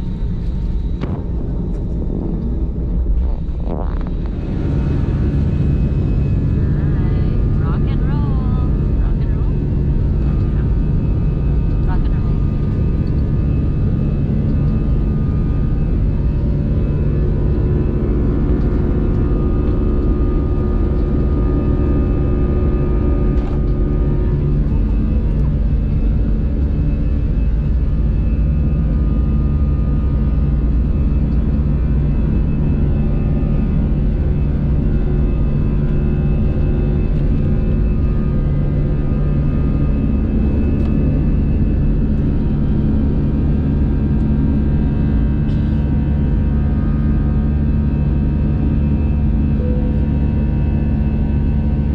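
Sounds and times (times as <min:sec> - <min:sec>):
jet engines from cabin: 0:00.0 - 0:51.9.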